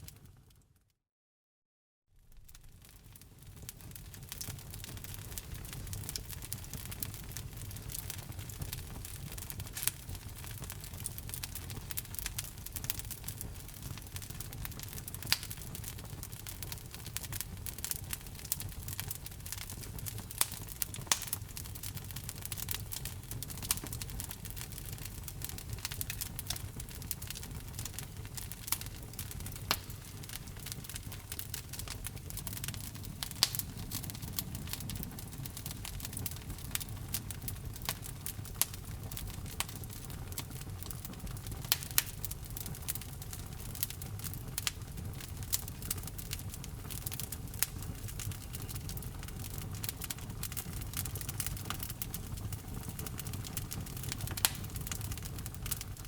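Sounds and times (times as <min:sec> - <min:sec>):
low rumble of fire flames: 0:02.2 - 0:56.0
burning logs crackling and popping: 0:02.3 - 0:56.0.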